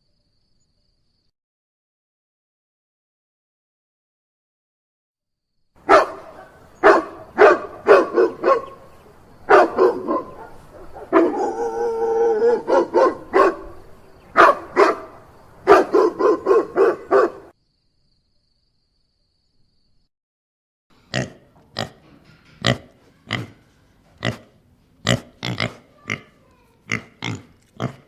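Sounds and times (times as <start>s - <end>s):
dog barking: 5.8s - 8.9s, 9.5s - 17.5s.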